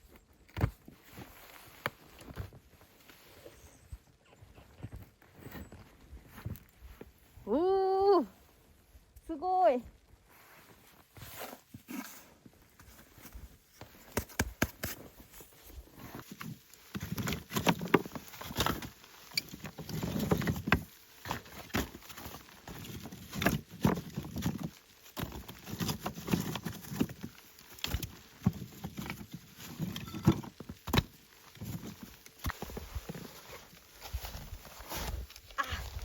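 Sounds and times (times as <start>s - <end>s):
footsteps crunching in snow: 0.8s - 7.4s, 14.8s - 36.0s.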